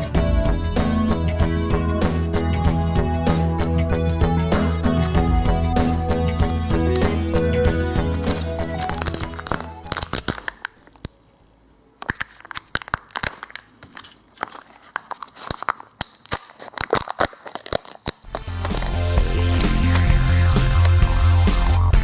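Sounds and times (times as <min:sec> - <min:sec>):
foil wrapper tearing and crinkling: 0:08.2 - 0:11.1, 0:12.0 - 0:21.0.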